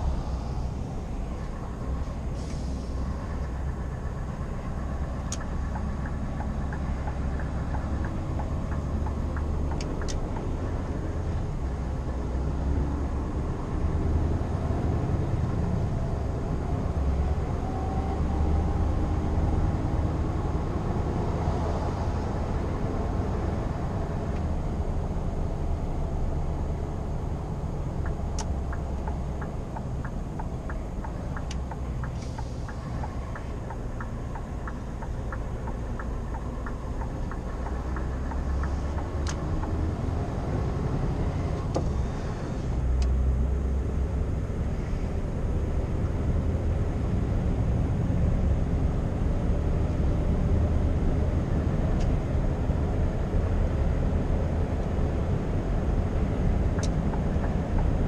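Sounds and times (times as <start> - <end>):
road noise: 0.0 - 58.0
truck diesel engine rumble: 0.0 - 58.0
regular ticking: 4.5 - 10.6, 28.0 - 39.8.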